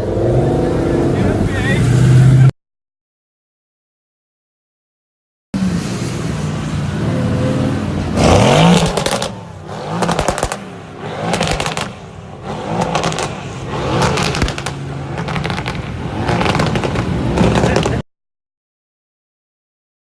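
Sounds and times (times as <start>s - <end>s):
sports car engine revving: 6.9s - 18.0s
exhaust crackling: 8.0s - 18.0s.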